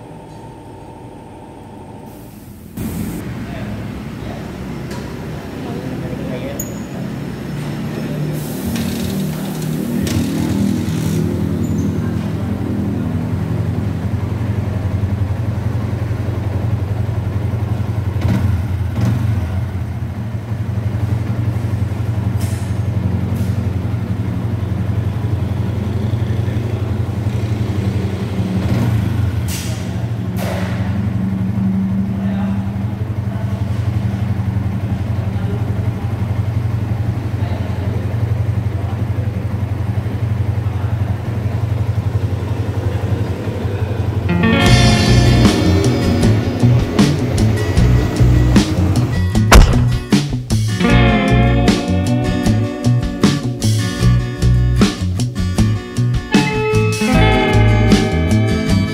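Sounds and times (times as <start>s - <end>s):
motorcycle engine idling: 9.2s - 29.4s, 30.9s - 56.0s.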